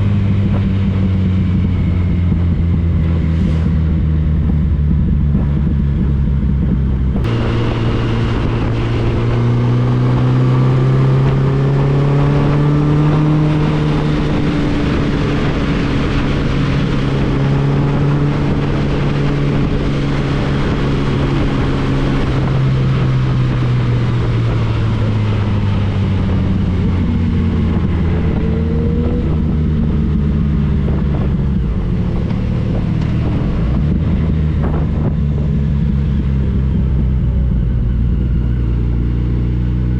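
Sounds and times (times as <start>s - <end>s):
wind rushing: 0.0s - 35.8s
motorcycle engine running: 0.0s - 39.9s.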